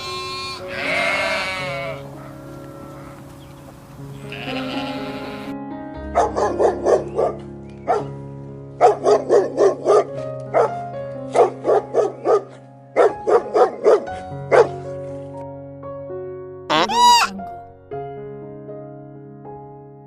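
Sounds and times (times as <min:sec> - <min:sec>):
background music with held tones: 0:00.0 - 0:20.0
dog barking: 0:06.2 - 0:08.1, 0:08.8 - 0:14.9.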